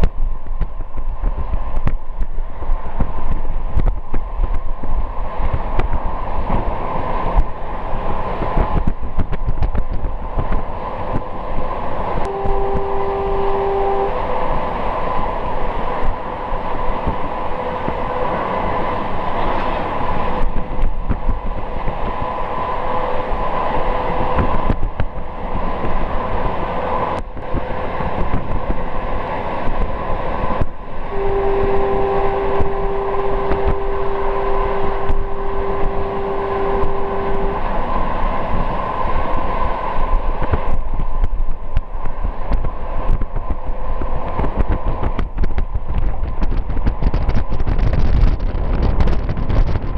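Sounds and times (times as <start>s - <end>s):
train wheels rumbling and rattling: 0.0s - 13.3s, 14.0s - 49.9s
faint steady whine: 12.1s - 18.6s, 27.2s - 43.8s
train horn: 12.2s - 15.3s, 31.0s - 38.7s.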